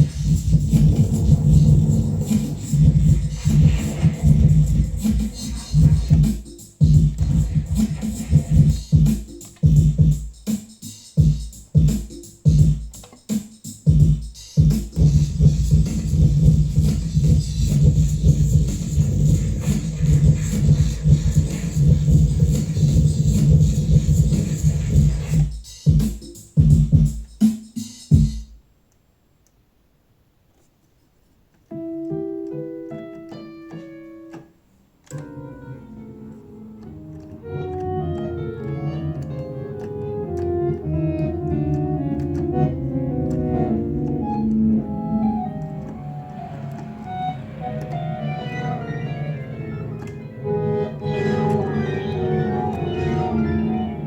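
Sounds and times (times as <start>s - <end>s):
dense rhythmic synthesizer pattern: 0.0s - 10.5s, 13.9s - 25.8s, 36.8s - 54.0s
bass-heavy electronic music: 0.0s - 13.0s, 13.7s - 27.2s, 40.3s - 54.0s
slow electric piano-like melody: 31.7s - 34.5s, 35.1s - 54.0s.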